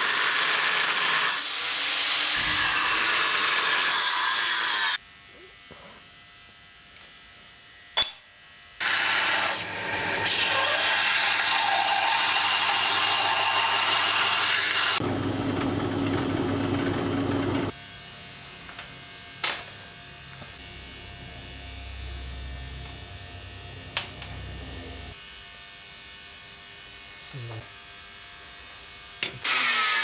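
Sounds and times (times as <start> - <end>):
power tool grinding metal: 0.0 - 5.0, 8.8 - 17.8, 20.1 - 25.2, 29.1 - 30.0.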